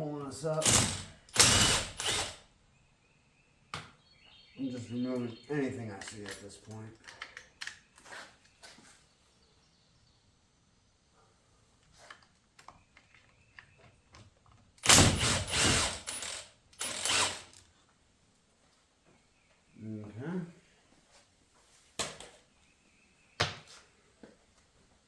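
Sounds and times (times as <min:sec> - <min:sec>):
ratchet wrench clicking: 0:00.6 - 0:02.4, 0:14.9 - 0:17.6
light clinks of tools: 0:04.7 - 0:08.1.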